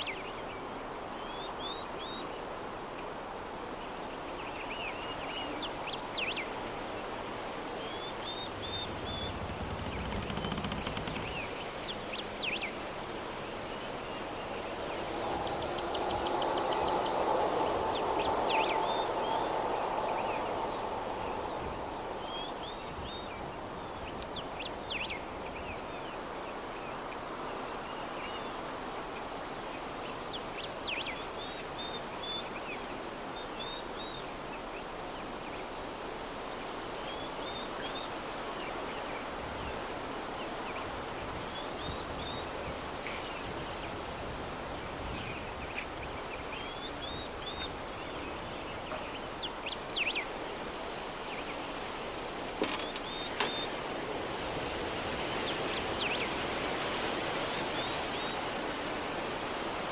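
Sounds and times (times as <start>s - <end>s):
soft breeze: 0.0s - 59.9s
small birds chirping: 4.6s - 12.8s, 45.1s - 54.1s.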